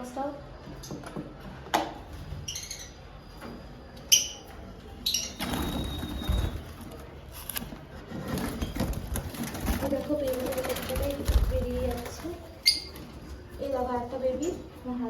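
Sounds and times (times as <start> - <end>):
lovebirds chirping: 10.2 - 15.0.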